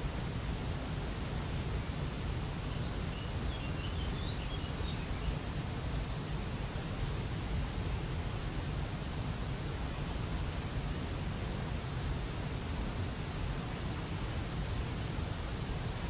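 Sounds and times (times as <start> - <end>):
faint bird chirps: 2.7 - 5.4.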